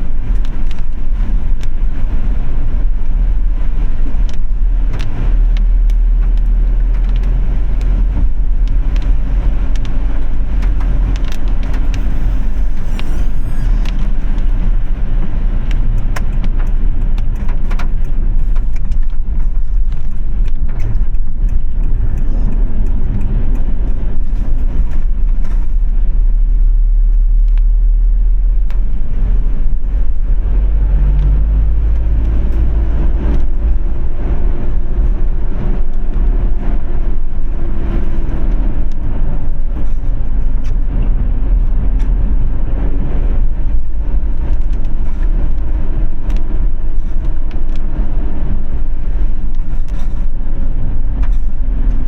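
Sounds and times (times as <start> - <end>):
faint engine hum: 0.0 - 52.0
low road rumble: 0.0 - 52.0
raindrops ticking: 15.2 - 25.0.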